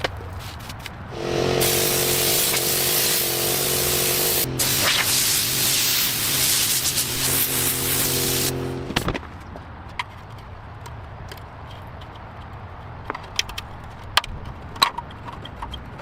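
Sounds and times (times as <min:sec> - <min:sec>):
motor hum: 0:01.1 - 0:09.1
spray tool hissing: 0:01.2 - 0:08.9.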